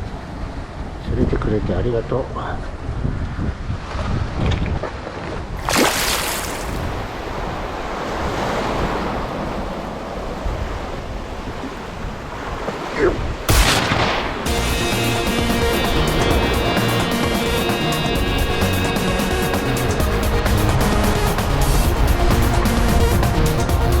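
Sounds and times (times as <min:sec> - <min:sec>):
waves washing against rocks: 0:04.0 - 0:14.6.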